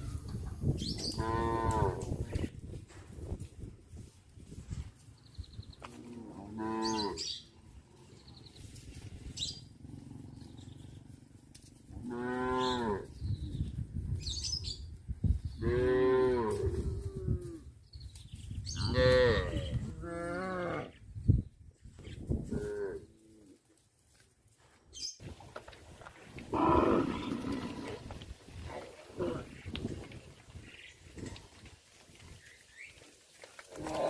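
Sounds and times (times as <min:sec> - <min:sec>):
cows mooing: 0:01.1 - 0:02.0, 0:05.9 - 0:07.4, 0:12.0 - 0:13.1, 0:26.5 - 0:29.5.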